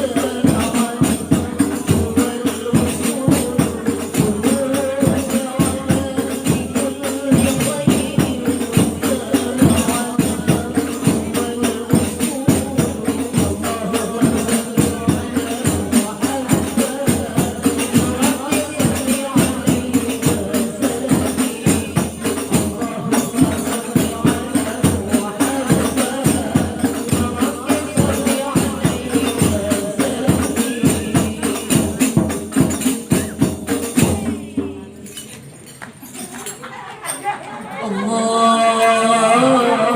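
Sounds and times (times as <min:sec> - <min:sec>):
women singing: 0:00.0 - 0:34.9, 0:36.8 - 0:39.9
frame drums beating: 0:00.0 - 0:35.2
tambourine jingles: 0:34.9 - 0:37.3.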